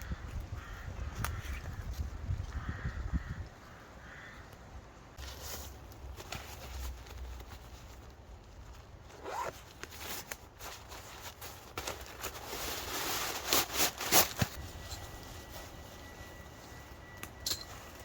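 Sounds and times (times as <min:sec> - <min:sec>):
gear rustling: 0:05.2 - 0:18.0.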